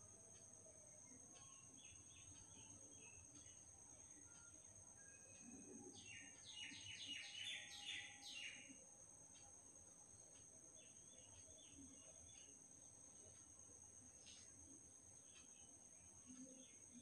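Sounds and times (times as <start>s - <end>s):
bird chirping: 1.0s - 8.8s, 10.6s - 13.5s.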